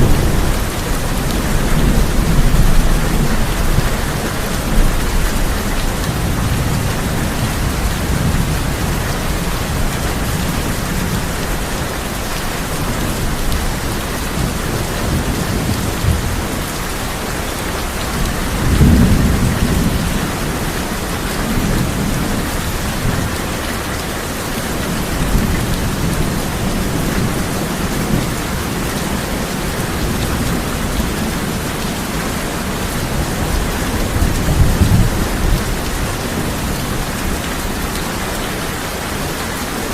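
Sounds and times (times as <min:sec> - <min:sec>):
thunder rumbling: 0:00.0 - 0:23.6
heavy rain on a tin roof: 0:00.0 - 0:39.9.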